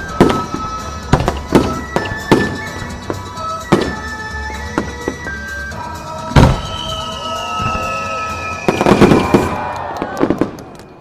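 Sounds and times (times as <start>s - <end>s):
crackling firework bangs: 0.0s - 5.3s, 6.3s - 10.9s
firework boom: 6.4s - 7.0s.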